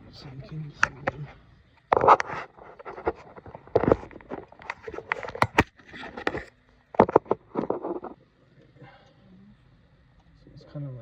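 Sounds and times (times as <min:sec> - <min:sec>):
handling clicks and scraping: 0:01.9 - 0:08.2.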